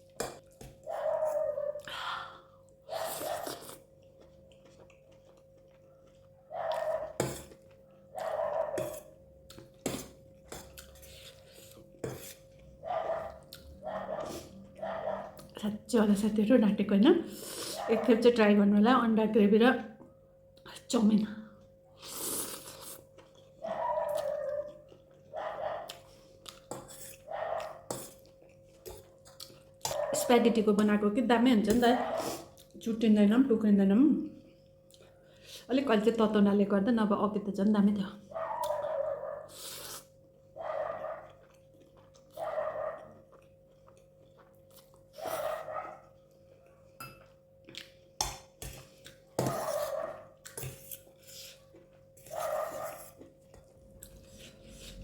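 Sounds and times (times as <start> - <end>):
person chewing: 2.6 - 15.6, 21.9 - 30.2, 34.5 - 35.5, 38.4 - 40.2, 40.9 - 55.0.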